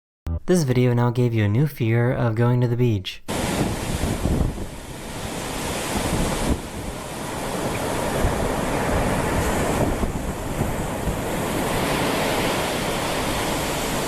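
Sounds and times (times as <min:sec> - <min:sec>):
wind buffeting microphone: 0:03.3 - 0:12.2
ocean surf washing on beach: 0:03.3 - 0:14.0.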